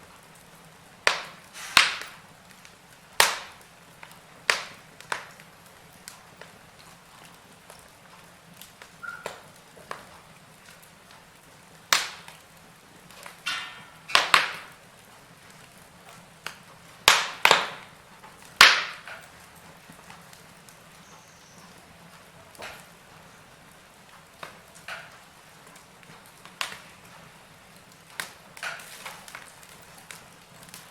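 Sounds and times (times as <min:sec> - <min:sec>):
fire crackling and popping: 0:00.0 - 0:30.9.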